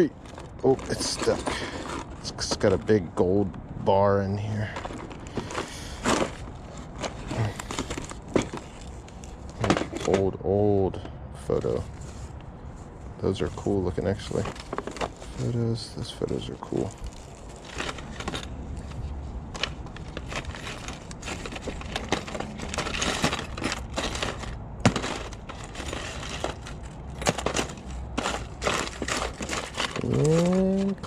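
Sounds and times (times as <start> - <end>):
coins and jewelry clinking: 16.9 - 19.0, 19.6 - 31.0.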